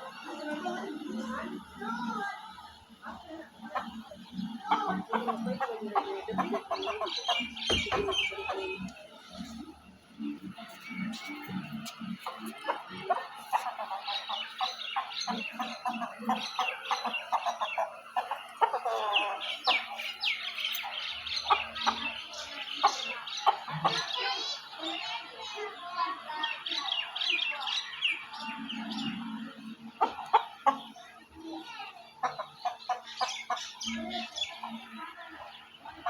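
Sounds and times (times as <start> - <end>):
chickens clucking and chirping: 0.0 - 36.0.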